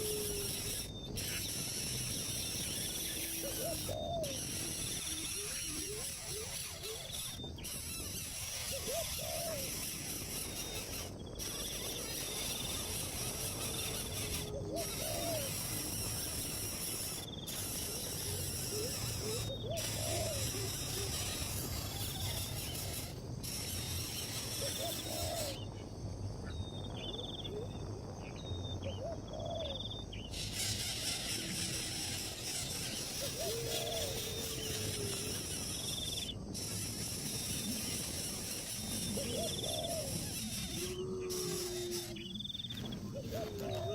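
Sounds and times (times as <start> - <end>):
steady high hiss: 0.0 - 43.9
low rise-and-fall bird calls: 26.4 - 36.4, 37.5 - 43.9.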